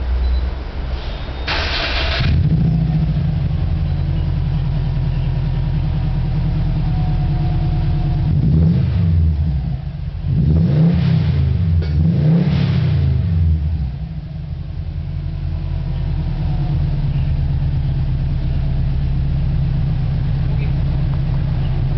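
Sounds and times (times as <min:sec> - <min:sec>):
car engine revving: 0:01.5 - 0:04.8, 0:05.6 - 0:14.3
car engine idling: 0:01.5 - 0:10.7, 0:13.0 - 0:21.9.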